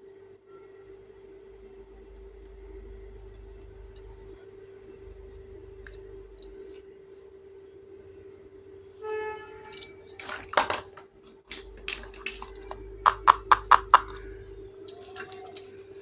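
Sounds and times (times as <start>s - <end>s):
steady low hum: 0.0s - 10.3s, 11.0s - 16.0s
toy kitchen pieces clicking: 10.1s - 14.2s, 14.9s - 15.7s.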